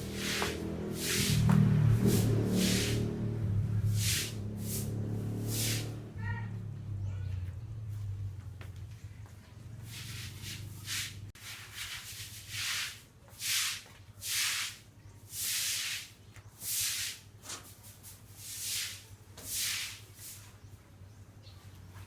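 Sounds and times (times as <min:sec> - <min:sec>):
rhythmic rubbing strokes: 0:00.0 - 0:06.1.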